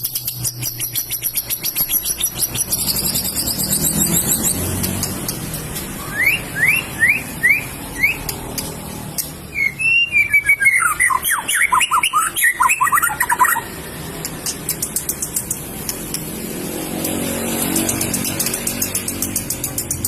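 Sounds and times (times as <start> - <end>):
bird singing whistled notes: 0.0 - 4.8, 6.0 - 8.4, 9.4 - 13.7.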